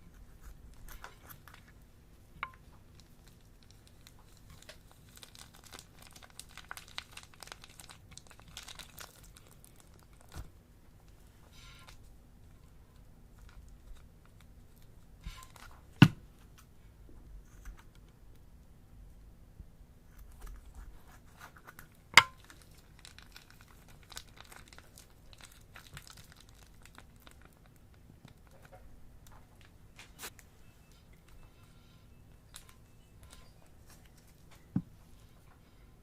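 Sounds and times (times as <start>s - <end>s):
slime crackling: 2.8s - 10.4s, 22.2s - 28.7s.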